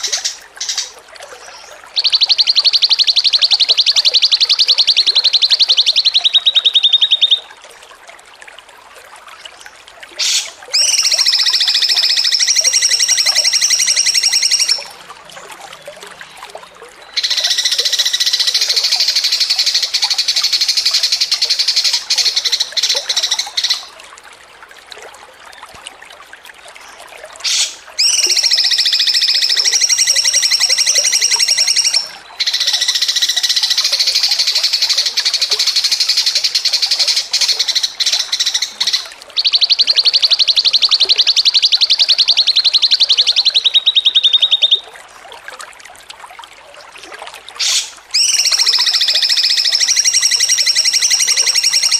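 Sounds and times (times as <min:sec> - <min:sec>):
songbird trilling: 0:00.0 - 0:07.5, 0:10.2 - 0:14.9, 0:17.1 - 0:23.9, 0:27.4 - 0:44.8, 0:47.6 - 0:51.9.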